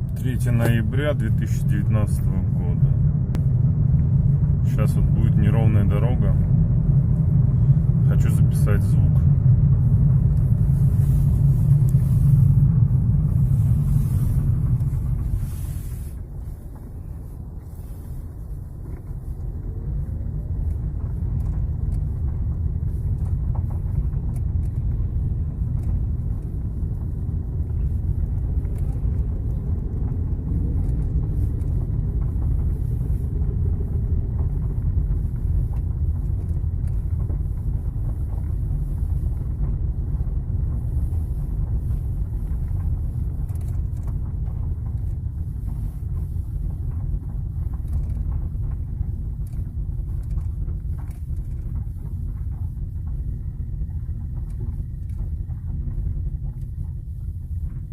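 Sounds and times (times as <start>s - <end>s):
tyres and suspension rumbling: 0.0s - 57.9s.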